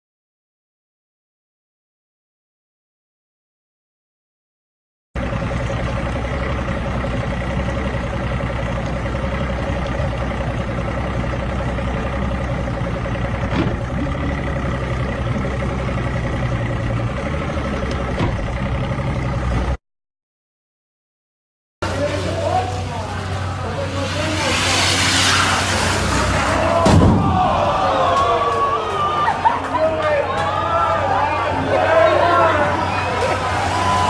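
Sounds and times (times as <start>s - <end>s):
vehicle engine running steadily: 5.2s - 19.8s, 21.8s - 34.0s.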